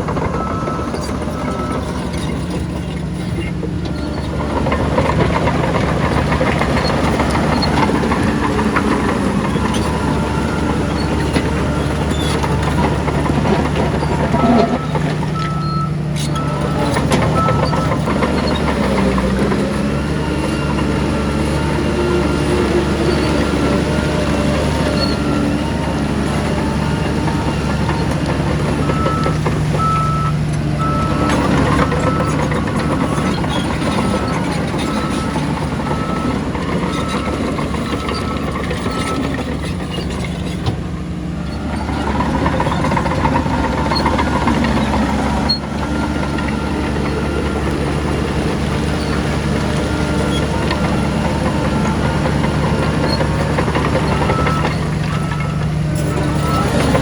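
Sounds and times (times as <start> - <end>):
heavy machinery diesel engines: 0.0 - 57.0
reversing alarm beeping: 0.3 - 2.2, 9.6 - 19.2, 26.3 - 39.6, 41.9 - 57.0.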